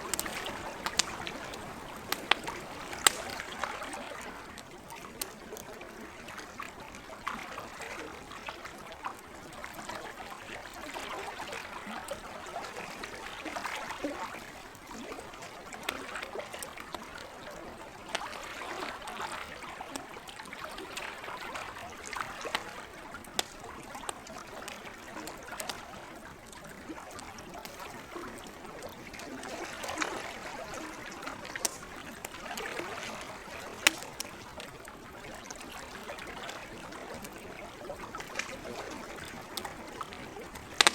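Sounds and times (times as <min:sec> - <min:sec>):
campfire crackling and popping: 0:00.0 - 0:07.4, 0:21.6 - 0:40.9
lake water lapping: 0:00.0 - 0:40.9.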